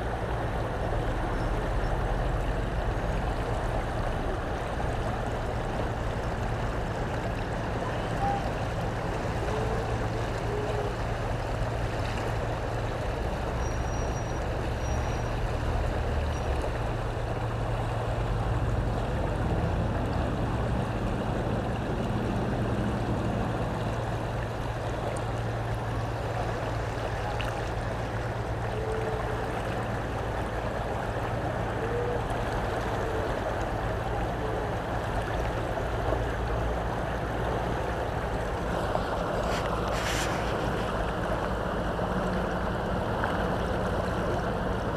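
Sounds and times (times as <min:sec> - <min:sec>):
constant low hum: 0:00.0 - 0:44.9
river rushing: 0:00.0 - 0:44.9.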